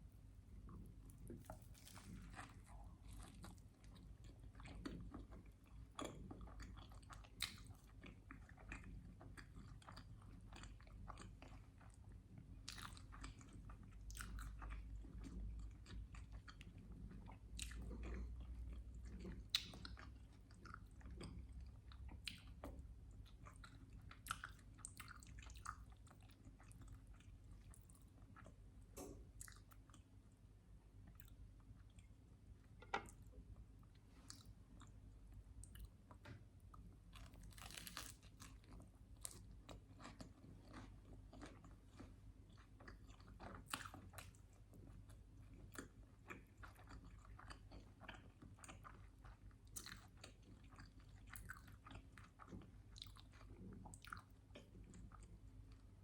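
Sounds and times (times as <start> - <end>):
person chewing and biting: 1.1 - 5.3, 37.1 - 44.3, 45.7 - 49.0.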